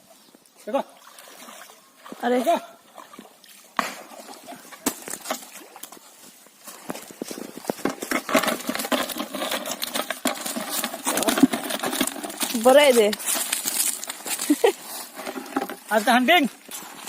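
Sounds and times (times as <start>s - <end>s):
fish flapping in net: 8.1s - 14.6s.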